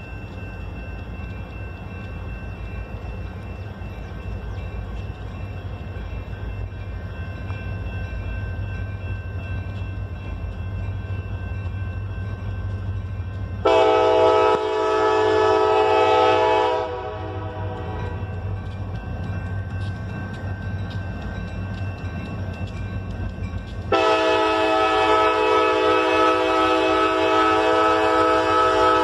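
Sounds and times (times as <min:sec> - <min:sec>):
diesel locomotive rumbling: 0:00.0 - 0:29.0
locomotive chime air horn: 0:13.6 - 0:18.5, 0:23.9 - 0:29.0.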